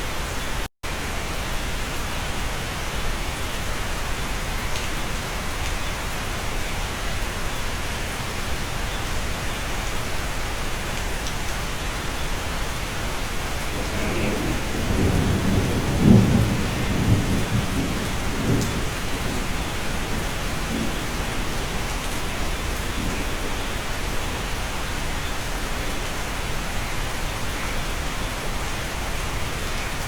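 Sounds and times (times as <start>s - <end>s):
steady rain: 0.0s - 30.0s
low roll of thunder: 13.6s - 24.0s.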